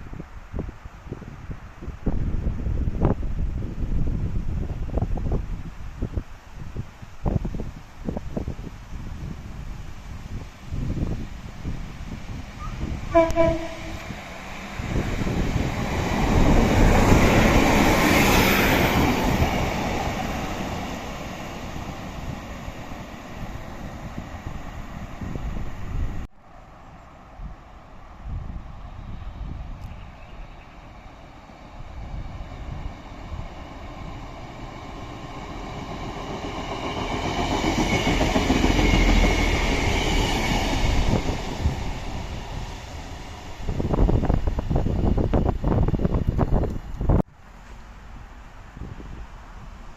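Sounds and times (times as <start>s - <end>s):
diesel train passing: 7.2s - 49.9s.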